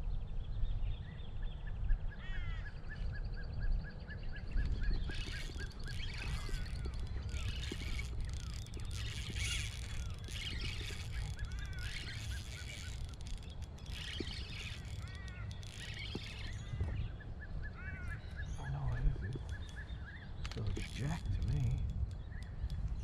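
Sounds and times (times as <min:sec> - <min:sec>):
birds chirping: 0:00.9 - 0:23.0.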